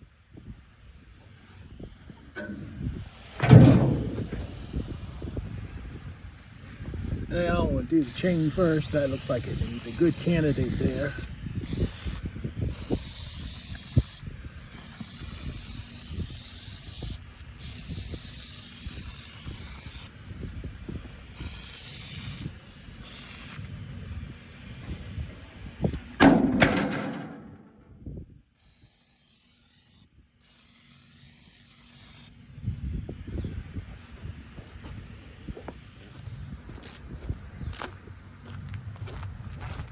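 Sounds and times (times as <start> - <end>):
spray hissing in bursts: 7.8 - 20.4, 21.0 - 23.7, 28.6 - 32.4.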